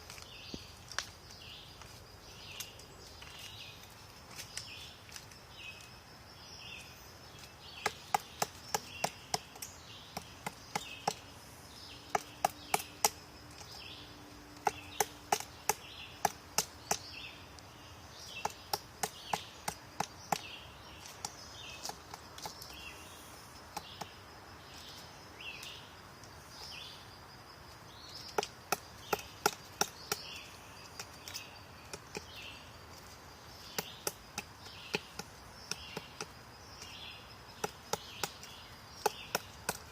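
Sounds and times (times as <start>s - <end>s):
woodpecker tapping on wood: 7.4s - 11.3s, 12.0s - 13.8s, 14.5s - 17.2s, 18.2s - 22.9s, 23.7s - 24.2s, 28.2s - 39.9s.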